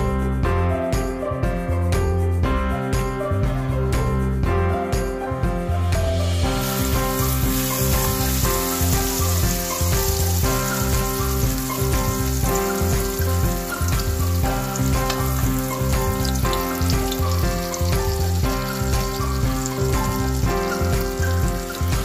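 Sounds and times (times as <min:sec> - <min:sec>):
background music: 0:00.0 - 0:22.0
eggplant frying in hot oil: 0:06.5 - 0:22.0.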